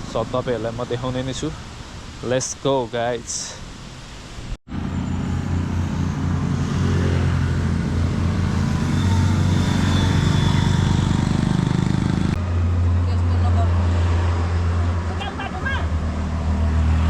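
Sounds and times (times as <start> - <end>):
vehicle engine droning: 4.7 - 17.0.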